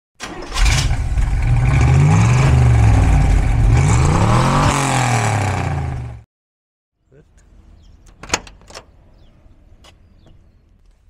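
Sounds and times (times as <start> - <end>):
car engine revving: 0.5 - 6.2.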